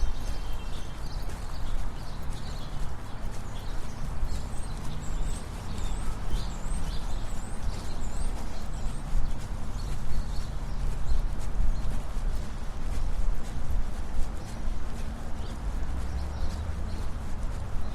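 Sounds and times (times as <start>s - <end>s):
bird chirping: 0.0s - 11.9s
footsteps on sidewalk: 0.0s - 17.9s.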